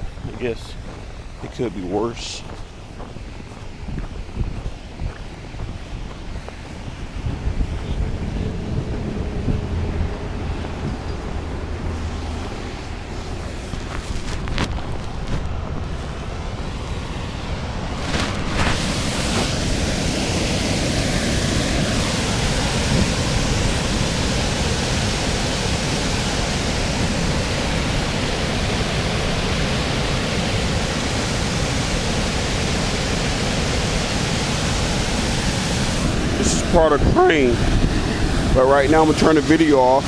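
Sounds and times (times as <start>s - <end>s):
waterfall rushing: 16.5s - 40.0s.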